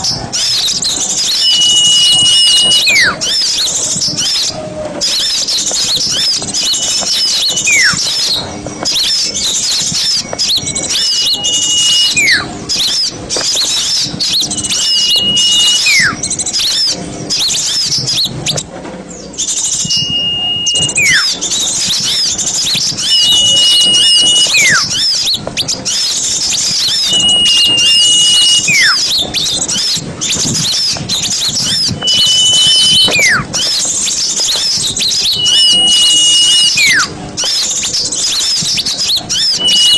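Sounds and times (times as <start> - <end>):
whistle sliding down: 0.0 - 3.7, 6.1 - 9.2, 9.9 - 13.0, 13.7 - 16.8, 19.4 - 25.4, 26.4 - 37.6, 38.4 - 39.9
small birds chirping: 0.0 - 39.9.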